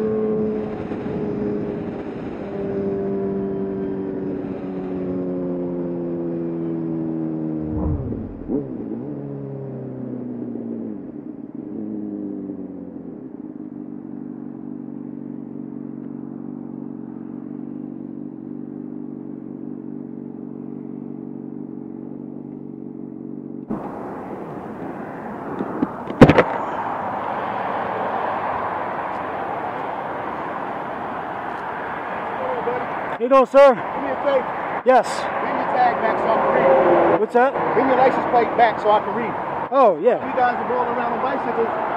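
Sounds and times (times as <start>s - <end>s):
road and wind noise: 0.0s - 41.9s
vehicle engine: 0.0s - 41.9s
sharp loud knock: 7.7s - 8.7s.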